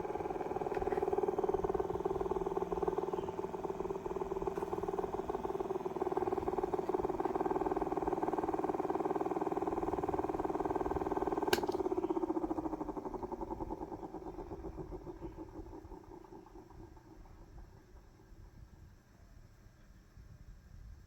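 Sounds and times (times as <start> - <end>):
electric fan motor humming: 0.0 - 18.4
fan switch click: 11.5 - 12.0.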